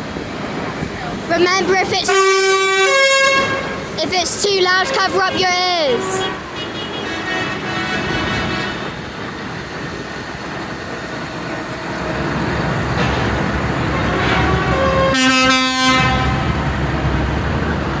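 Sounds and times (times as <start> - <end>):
tractor engines passing: 0.0 - 18.0
horn blast: 2.0 - 4.0, 4.9 - 9.0, 13.8 - 16.6.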